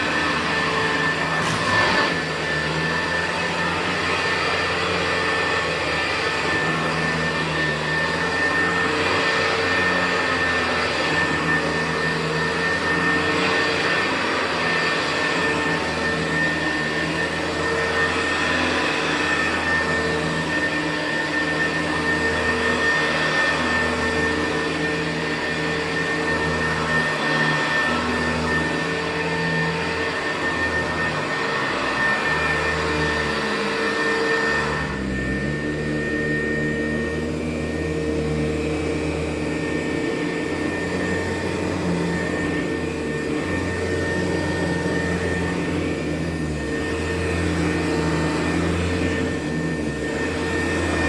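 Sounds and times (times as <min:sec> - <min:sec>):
vacuum cleaner on carpet: 0:00.0 - 0:51.0.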